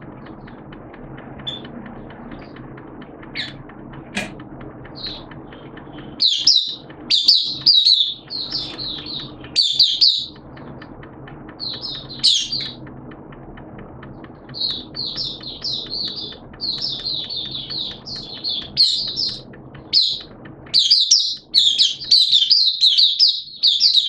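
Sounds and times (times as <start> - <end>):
songbird chirping: 4.8 - 24.0.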